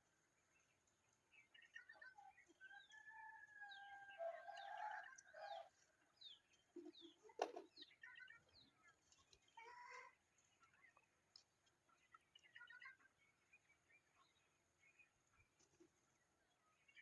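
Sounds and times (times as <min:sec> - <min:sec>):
bird chatter: 0:00.0 - 0:17.0.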